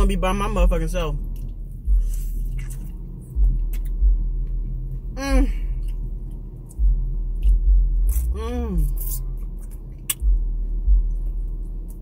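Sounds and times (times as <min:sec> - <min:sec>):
low rumble: 0:00.0 - 0:12.0
person chewing food: 0:01.2 - 0:12.0
person humming: 0:05.2 - 0:05.8, 0:08.3 - 0:09.0.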